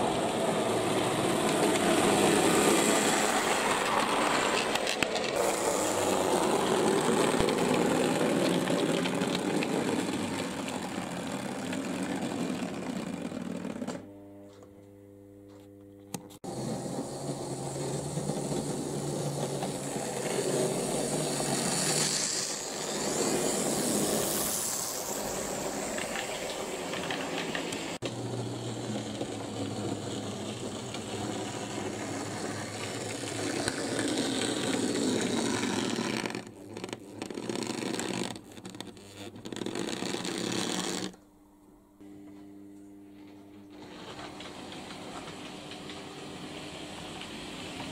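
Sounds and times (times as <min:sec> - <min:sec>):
wheel and rail rattle: 0:43.8 - 0:47.9.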